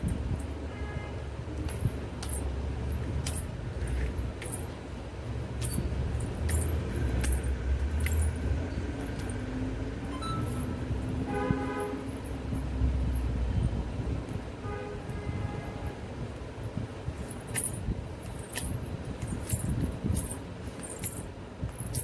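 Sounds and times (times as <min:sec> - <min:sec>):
anklets jingling: 0:01.6 - 0:13.4, 0:15.7 - 0:22.0
held horn-like tone: 0:10.1 - 0:12.3.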